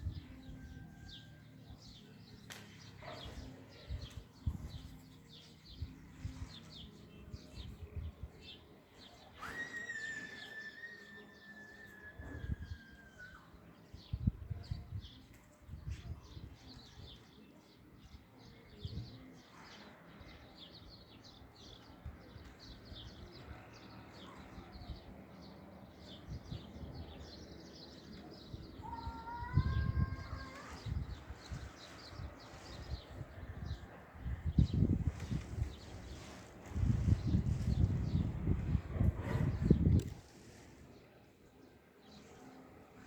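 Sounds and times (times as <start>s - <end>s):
whistle-like bird call: 9.4s - 13.4s.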